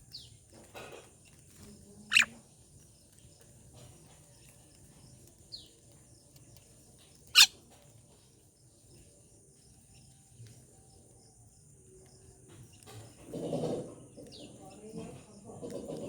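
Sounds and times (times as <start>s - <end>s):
falling bird chirp: 2.1s - 2.4s.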